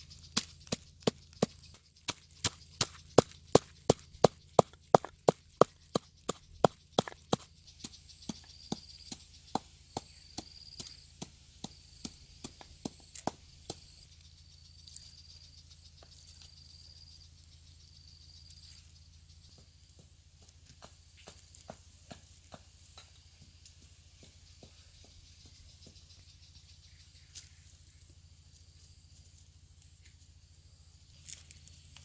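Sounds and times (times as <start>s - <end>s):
scattered taps: 0.3s - 13.8s.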